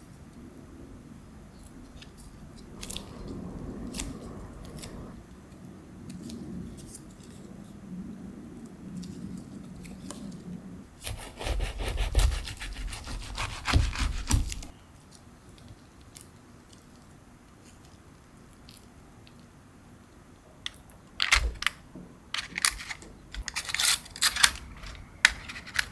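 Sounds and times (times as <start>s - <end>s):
quick rubbing and scraping strokes: 11.0s - 14.7s.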